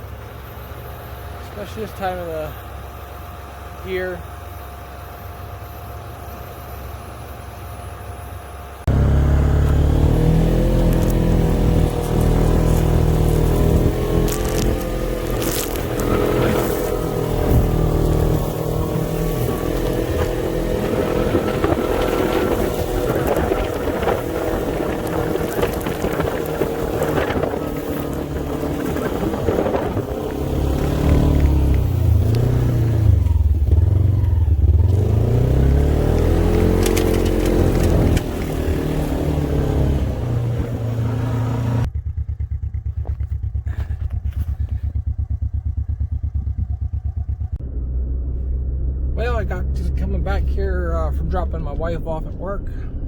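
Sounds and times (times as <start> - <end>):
engine running under load: 0.0 - 53.0
road and wind noise: 0.0 - 53.0
engine idling quietly: 40.3 - 53.0.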